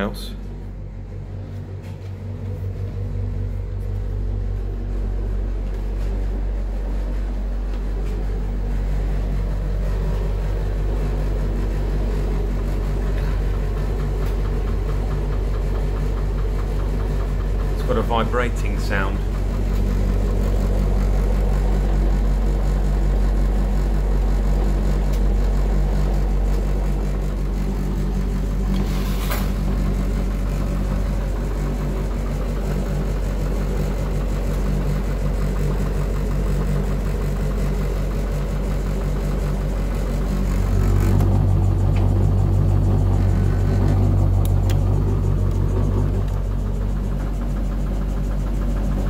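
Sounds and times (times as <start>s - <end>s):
tumble dryer humming and vibrating: 0.0s - 49.0s.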